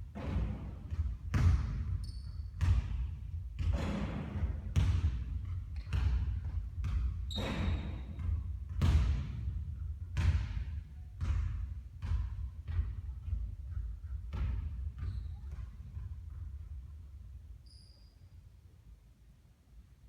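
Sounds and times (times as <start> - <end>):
basketball bouncing in a hall: 0.0 - 18.5
shoe squeaks: 2.0 - 2.6, 7.3 - 8.2, 15.0 - 15.5, 17.6 - 18.5.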